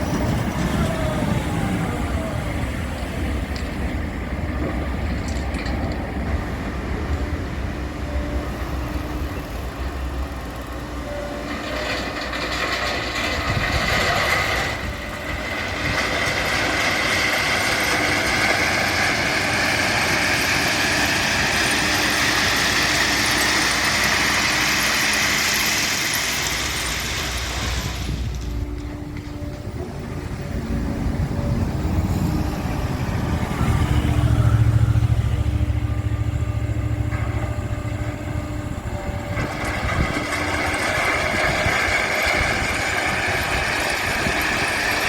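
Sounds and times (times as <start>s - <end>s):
low diesel engine rumble: 0.0s - 45.0s
train passing: 0.0s - 45.0s
high whine: 26.6s - 40.2s.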